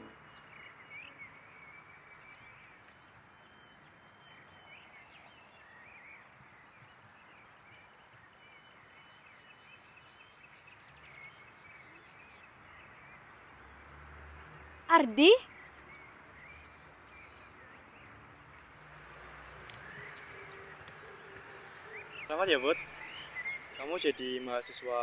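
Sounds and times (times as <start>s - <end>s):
small birds chirping: 0.0s - 25.0s
outdoor background hiss: 18.9s - 25.0s.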